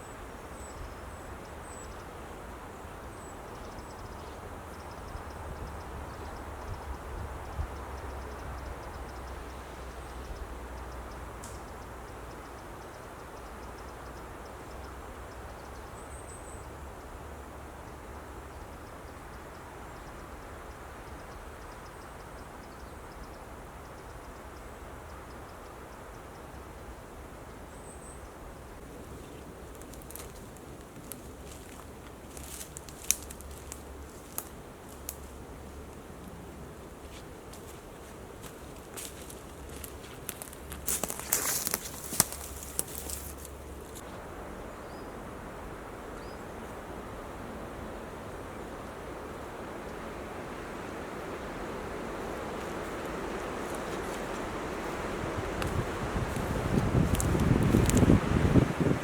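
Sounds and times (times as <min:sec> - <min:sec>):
wind rumble on microphone: 0:00.0 - 0:15.9, 0:39.1 - 0:59.0
wind in woodland: 0:00.0 - 0:59.0.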